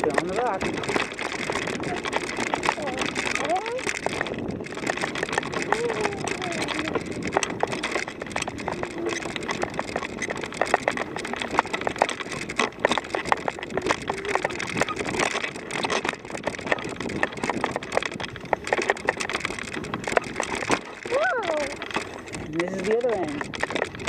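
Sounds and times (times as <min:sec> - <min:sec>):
footsteps crunching on rock: 0:00.0 - 0:24.0.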